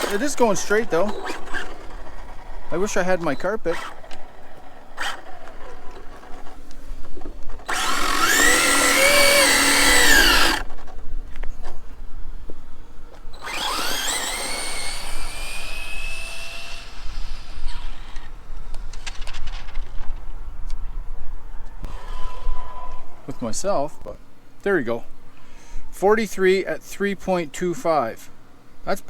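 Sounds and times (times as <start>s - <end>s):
electric motor whining: 0.0s - 6.6s, 7.5s - 10.9s, 13.3s - 19.1s.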